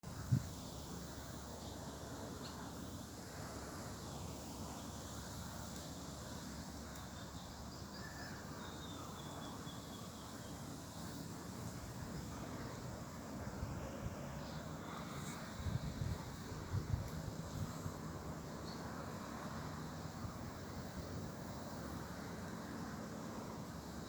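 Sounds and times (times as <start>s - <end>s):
outdoor background noise: 0.0s - 24.0s
faint bird calls: 7.2s - 10.5s.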